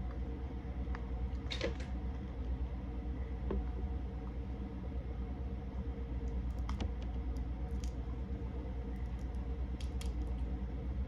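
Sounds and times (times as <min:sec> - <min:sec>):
steady low hum: 0:00.0 - 0:11.0
seafood shells clicking: 0:09.2 - 0:10.4.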